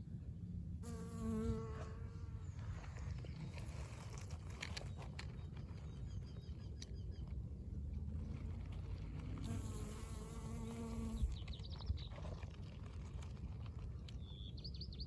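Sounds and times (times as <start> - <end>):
bee buzzing in flight: 0.9 - 2.2.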